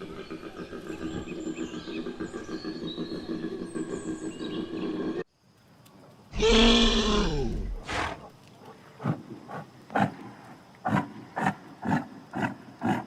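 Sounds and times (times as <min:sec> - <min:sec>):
birds chirping: 0:00.0 - 0:05.2
big cat roaring: 0:06.4 - 0:08.2.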